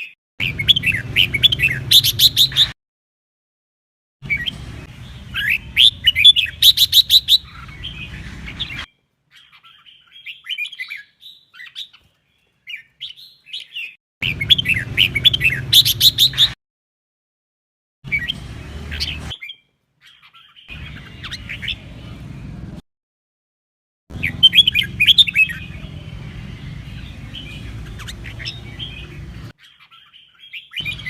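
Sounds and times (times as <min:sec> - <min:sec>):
bird singing whistled trills: 0:00.4 - 0:02.7, 0:04.2 - 0:11.9, 0:12.8 - 0:16.6, 0:24.2 - 0:26.0.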